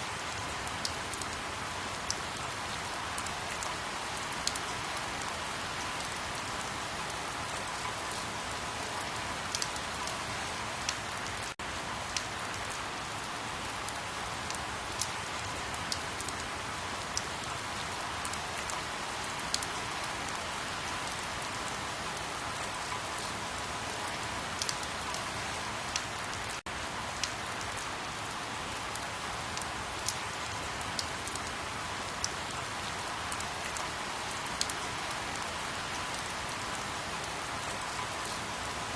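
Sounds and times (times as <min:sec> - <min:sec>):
steady rain falling: 0:00.0 - 0:38.9
raindrop ticks: 0:08.9 - 0:10.2, 0:27.2 - 0:27.8, 0:28.9 - 0:31.5.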